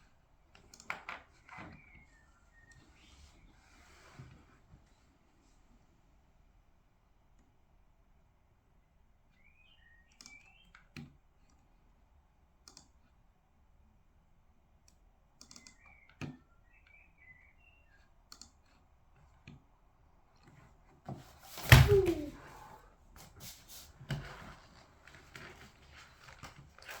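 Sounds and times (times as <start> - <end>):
faint chirps: 9.3 - 10.8, 15.5 - 18.1.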